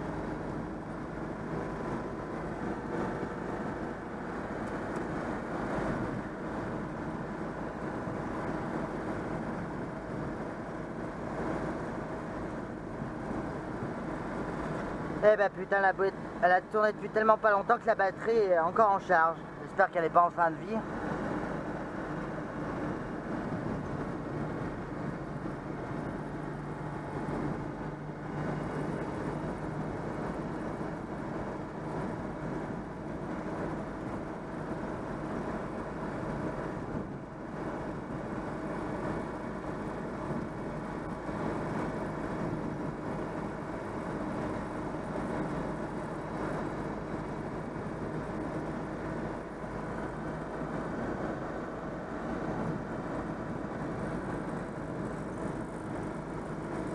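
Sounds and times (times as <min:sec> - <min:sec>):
car engine running: 0:00.0 - 0:56.9.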